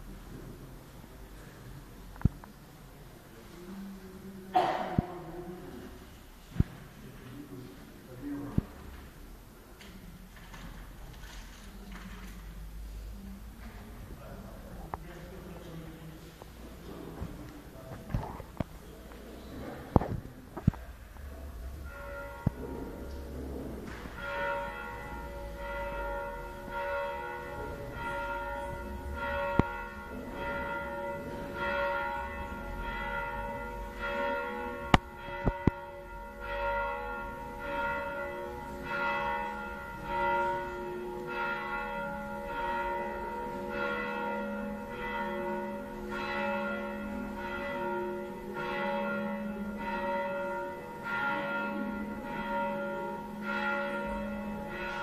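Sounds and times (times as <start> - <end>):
church bells pealing: 21.5 - 55.0.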